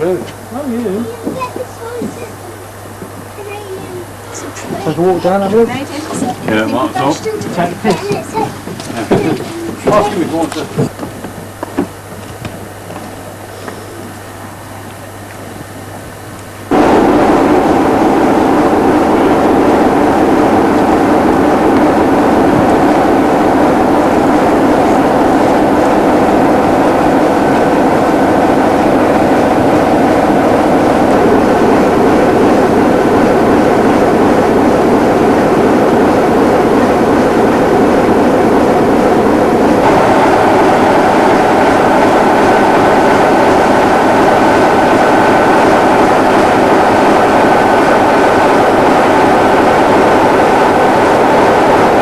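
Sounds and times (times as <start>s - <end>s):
train wheels rumbling on track: 0.0s - 52.0s
faint steady tones: 12.8s - 52.0s.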